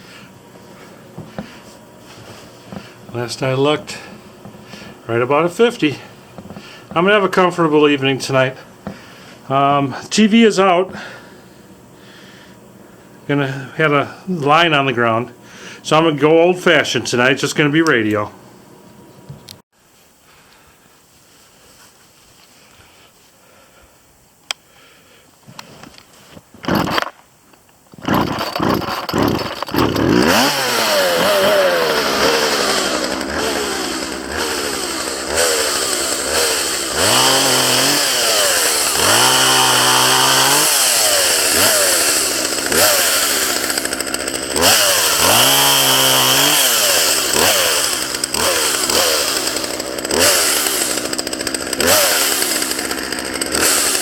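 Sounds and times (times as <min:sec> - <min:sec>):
chainsaw engine revving: 0:02.3 - 0:07.4, 0:26.6 - 0:27.1, 0:27.9 - 0:54.0
starter cord pulls: 0:26.6 - 0:54.0.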